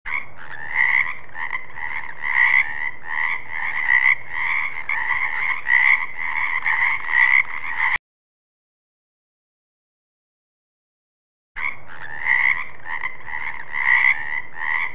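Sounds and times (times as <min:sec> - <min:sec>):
frogs croaking: 0:00.1 - 0:08.0, 0:11.6 - 0:14.9.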